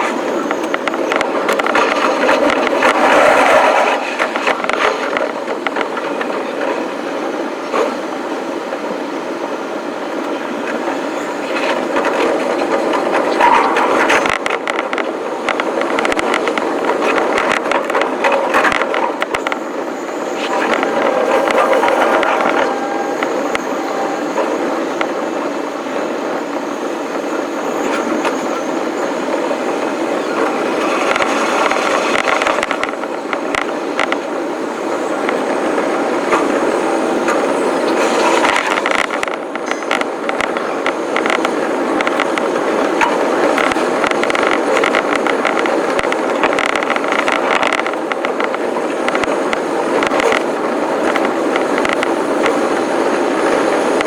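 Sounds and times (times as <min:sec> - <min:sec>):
train wheels rumbling on rails: 0:00.0 - 0:54.0
clicks: 0:13.4 - 0:25.2.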